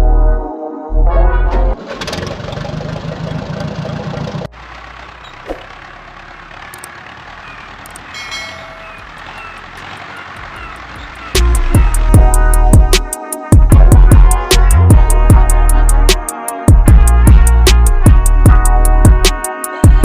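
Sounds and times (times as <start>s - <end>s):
vehicle engine running: 1.7s - 13.0s
faint high chirps: 6.7s - 9.7s.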